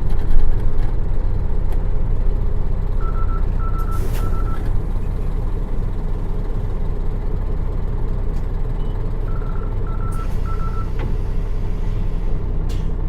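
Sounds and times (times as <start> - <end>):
bus diesel engine running: 0.0 - 13.0
short electronic beeps: 3.0 - 4.7, 8.8 - 10.9.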